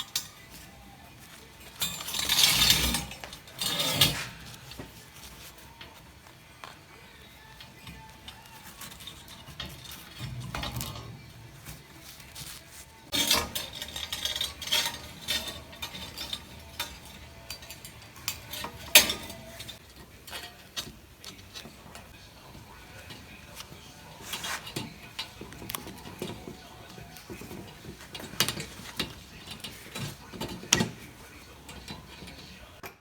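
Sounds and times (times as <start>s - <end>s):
steel pieces clinking and scraping: 0.0s - 32.8s.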